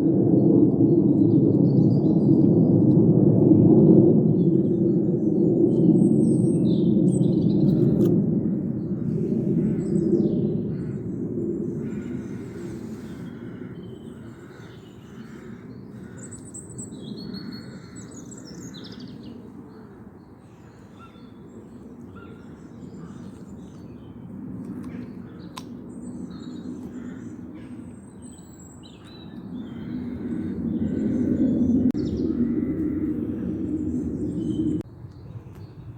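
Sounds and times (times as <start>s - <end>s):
small birds chirping and singing: 24.9s - 33.0s, 33.6s - 35.9s
low background rumble: 29.6s - 34.8s.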